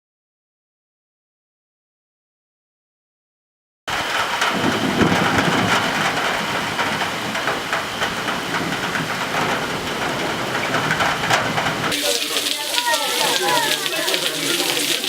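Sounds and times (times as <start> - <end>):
heavy rain pouring: 3.9 - 15.0.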